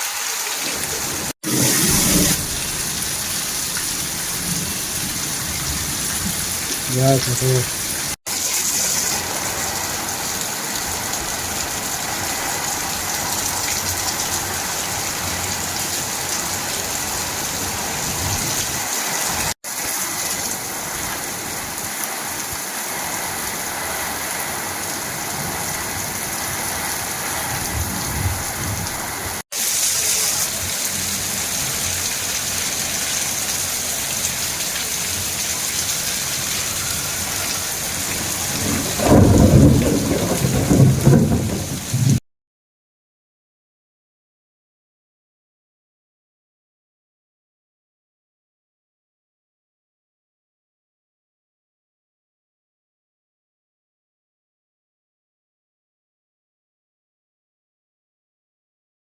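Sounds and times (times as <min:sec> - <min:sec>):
rain pouring: 0:00.0 - 0:42.2.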